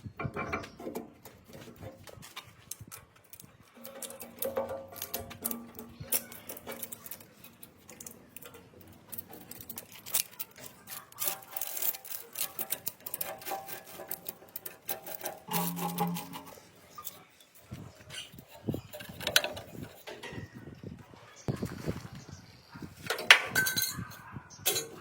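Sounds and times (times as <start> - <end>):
scraping and rubbing strokes: 3.7 - 23.1.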